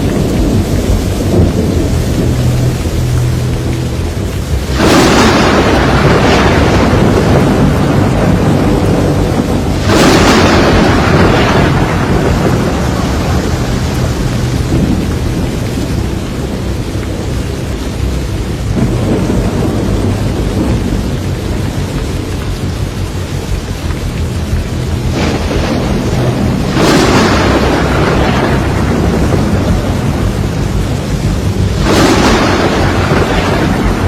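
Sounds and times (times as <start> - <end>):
steady rain: 0.0 - 34.0
thunderclaps rolling: 0.0 - 34.0.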